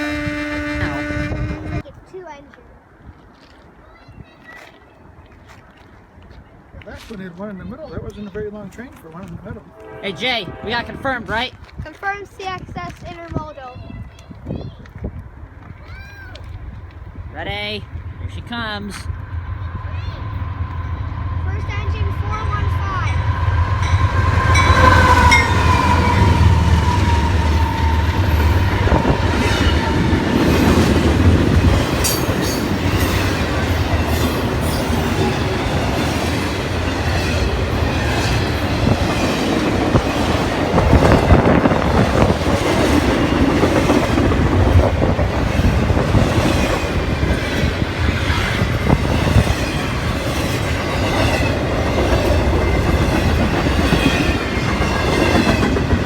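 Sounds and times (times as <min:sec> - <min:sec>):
diesel locomotive hum: 0:00.0 - 0:01.9, 0:09.6 - 0:12.2, 0:16.3 - 0:56.0
train cars clattering over rails: 0:23.2 - 0:56.0.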